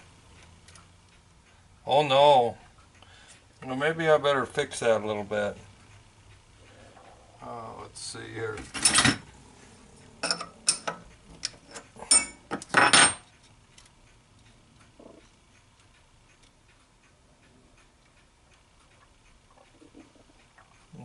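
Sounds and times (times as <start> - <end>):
faint ticks: 0.2 - 1.7, 2.6 - 3.8, 4.6 - 8.3, 13.3 - 21.0
metallic clicks and clanks: 8.6 - 9.4, 10.2 - 14.5.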